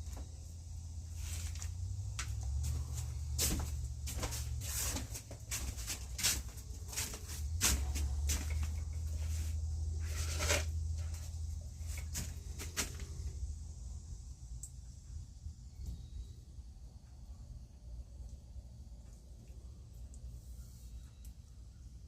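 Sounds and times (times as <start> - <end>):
steady low hum: 0.0 - 22.0
wet concrete scraping and knocking: 10.0 - 11.3.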